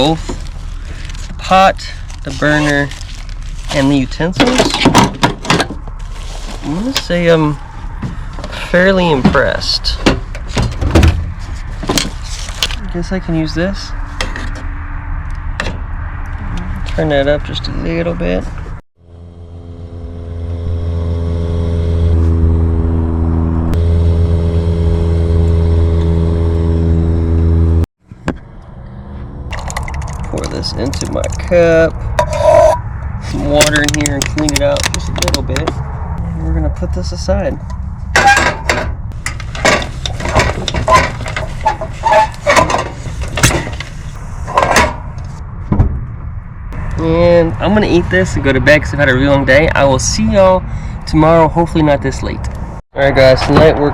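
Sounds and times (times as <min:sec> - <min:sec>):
engine humming: 0:00.0 - 0:50.9
steady low rumble: 0:00.0 - 0:53.9
metal pot and utensils clinking: 0:32.2 - 0:32.8.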